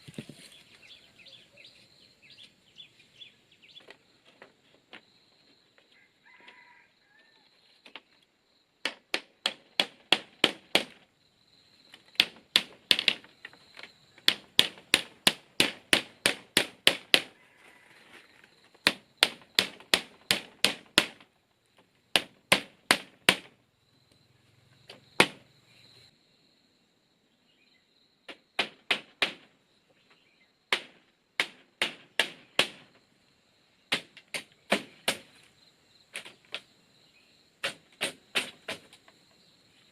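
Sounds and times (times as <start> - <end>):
hand tool striking bamboo: 8.8 - 11.0, 11.9 - 17.4, 18.8 - 21.3, 22.1 - 23.5, 28.3 - 29.5, 30.7 - 32.9, 33.9 - 35.4, 37.6 - 39.0.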